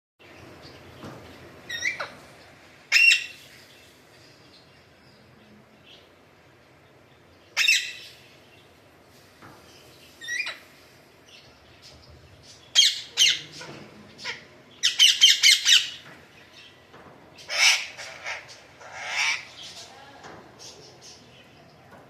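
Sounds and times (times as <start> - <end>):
parakeet squawking: 1.7 - 2.2, 2.9 - 3.4, 12.7 - 13.6, 14.2 - 16.0, 17.5 - 19.9.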